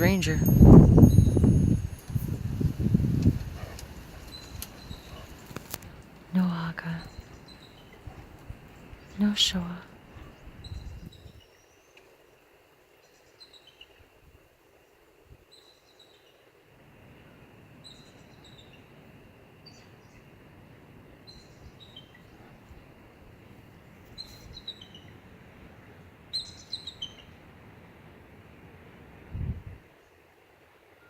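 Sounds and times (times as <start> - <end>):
faint outdoor background noise: 0.0 - 31.0
bird chirping: 2.6 - 12.0, 24.1 - 25.2, 26.3 - 27.4.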